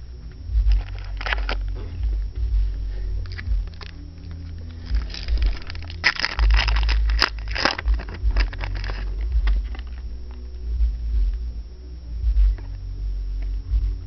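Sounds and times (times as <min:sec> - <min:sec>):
low handling rumble: 0:00.0 - 0:14.0
foil wrapper crinkling: 0:00.7 - 0:01.8, 0:03.2 - 0:10.4.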